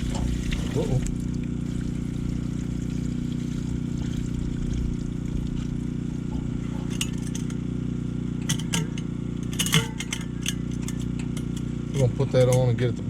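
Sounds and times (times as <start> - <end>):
water pouring into a pot: 0.0 - 7.6
low hum: 0.0 - 12.2.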